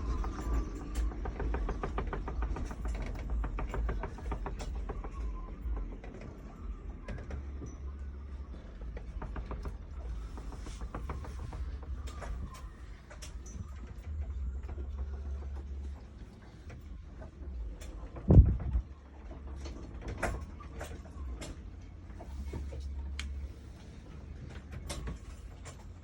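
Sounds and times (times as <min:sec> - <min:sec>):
rapid rattling clicks: 0:00.0 - 0:07.7, 0:08.3 - 0:22.4
wind buffeting microphone: 0:18.1 - 0:18.9.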